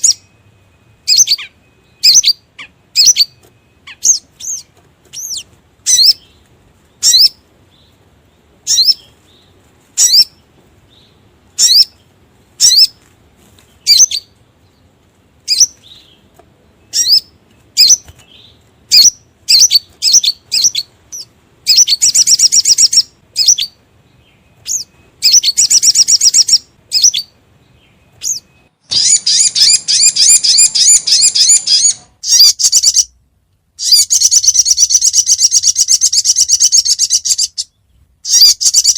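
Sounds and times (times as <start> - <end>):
bird chirping and trilling: 0.0 - 13.0, 13.6 - 33.2, 33.8 - 38.9.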